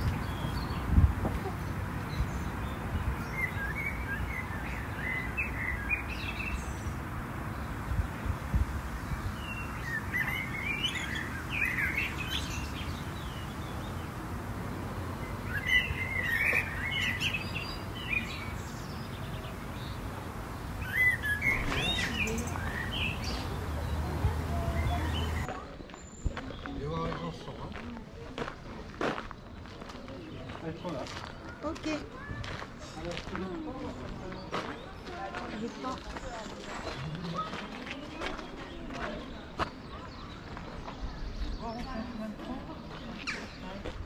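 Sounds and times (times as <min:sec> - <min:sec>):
songbird twittering: 0:00.0 - 0:25.5.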